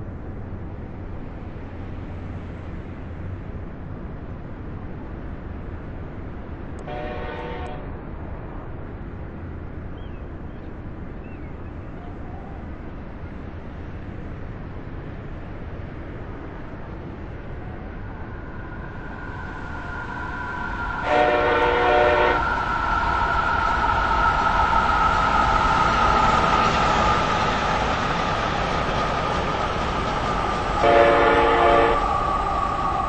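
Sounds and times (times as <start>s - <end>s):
rail rumble: 0.0s - 33.0s
train horn blasts: 6.8s - 8.0s, 21.0s - 22.5s, 30.8s - 32.1s
high falling whine: 17.9s - 33.0s.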